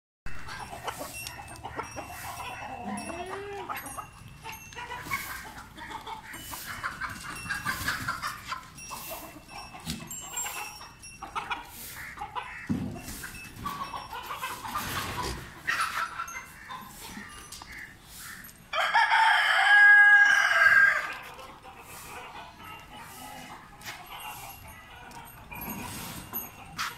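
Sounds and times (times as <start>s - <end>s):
clucking and chirping calls: 0.3s - 26.9s.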